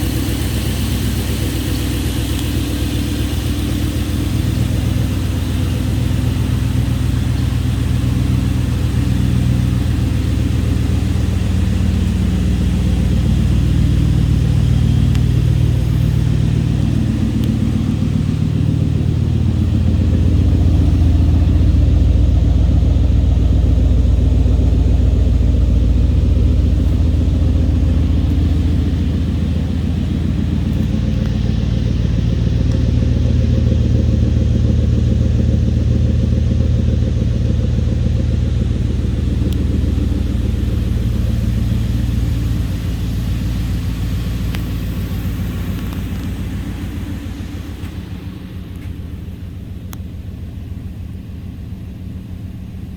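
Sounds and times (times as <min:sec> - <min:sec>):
truck engine running steadily: 0:00.0 - 0:52.9.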